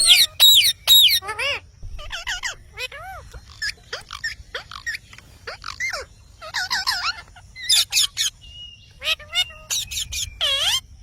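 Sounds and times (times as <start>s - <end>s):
parrot squawking and whistling: 0.0s - 1.3s.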